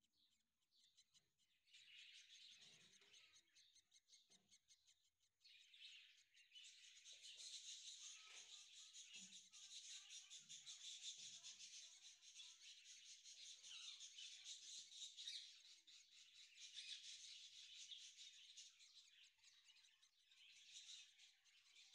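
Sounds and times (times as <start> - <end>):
high-pitched bird chirping: 5.6 - 15.6.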